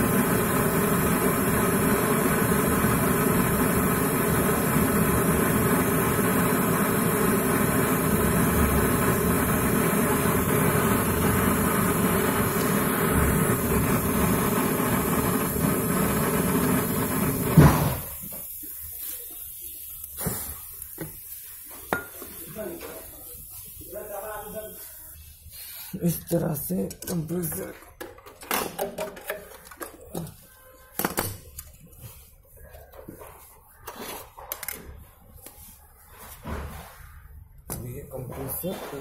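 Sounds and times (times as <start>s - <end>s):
torch shut-off pop: 0.0s - 18.4s
brazing torch burning: 0.0s - 24.8s.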